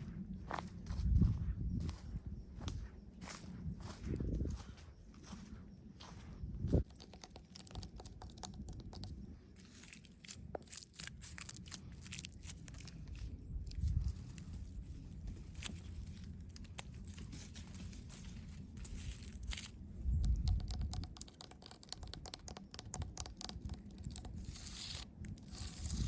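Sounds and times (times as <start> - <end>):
dry plant material crunching: 9.6 - 19.8.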